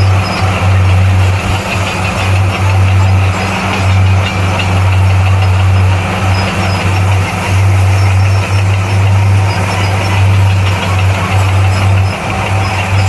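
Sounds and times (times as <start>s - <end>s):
bulldozer diesel engine humming: 0.0s - 13.0s
machine clatter: 0.0s - 13.0s.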